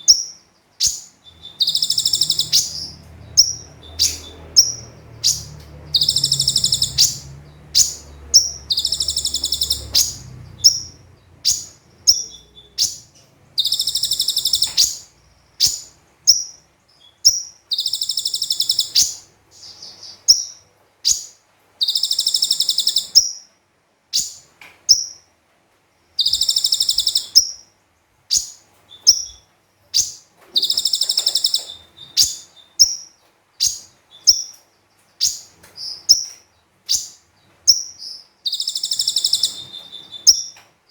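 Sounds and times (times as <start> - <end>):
bird buzzy trills: 0.0 - 16.6, 17.2 - 23.4, 26.2 - 27.6, 30.0 - 34.6, 36.9 - 40.6
bird sharp chirps: 0.0 - 23.5, 24.1 - 25.2, 26.2 - 27.7, 28.3 - 34.6, 35.2 - 40.6.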